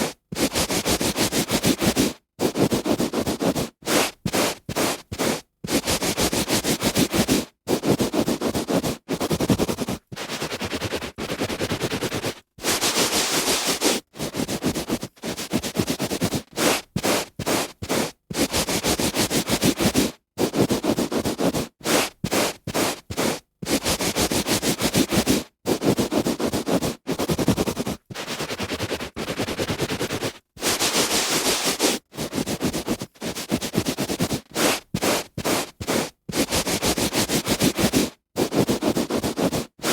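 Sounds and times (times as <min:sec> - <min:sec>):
hand rubbing on carpet: 0:00.0 - 0:39.9.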